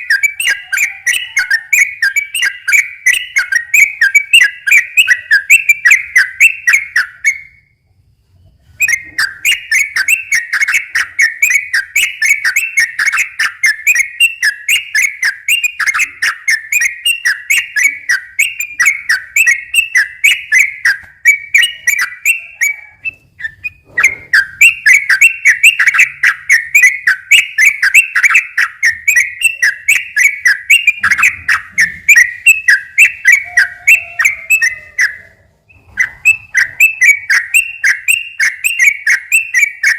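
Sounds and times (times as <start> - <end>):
bulbul singing whistled notes: 0.0 - 7.8, 8.7 - 39.9.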